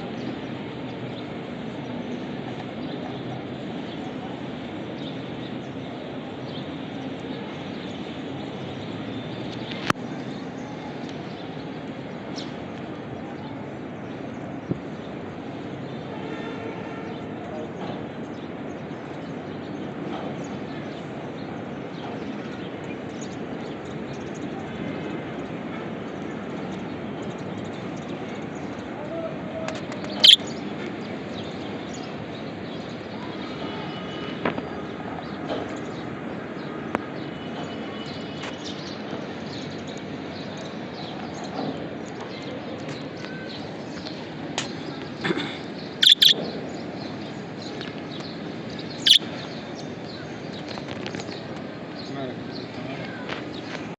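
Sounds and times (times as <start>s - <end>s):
steady background noise: 0.0s - 53.9s
budgerigars chirping: 30.2s - 30.4s, 45.9s - 46.5s, 49.0s - 49.3s
loud sharp bird call: 30.2s - 30.4s, 46.0s - 46.5s, 49.0s - 49.3s.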